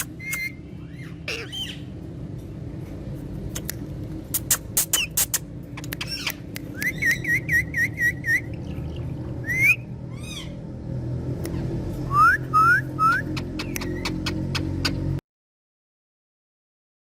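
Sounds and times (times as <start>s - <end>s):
parrot whistling: 0.0s - 1.8s, 4.4s - 8.8s, 9.4s - 10.6s, 12.1s - 14.6s
parrot chirps: 0.0s - 1.9s, 4.3s - 10.6s, 12.1s - 15.1s
sharp clicks: 4.4s - 7.0s, 13.4s - 14.9s.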